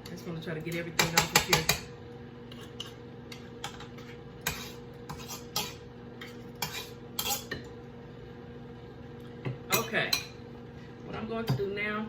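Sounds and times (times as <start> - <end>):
faint steady hum: 0.0 - 12.0
utensil scraping mixing bowl: 1.0 - 7.7.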